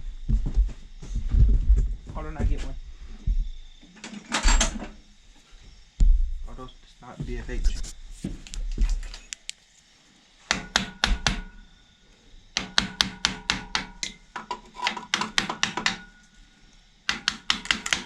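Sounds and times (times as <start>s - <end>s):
hammer tapping on metal: 10.5s - 11.6s, 12.6s - 16.3s, 17.1s - 18.0s.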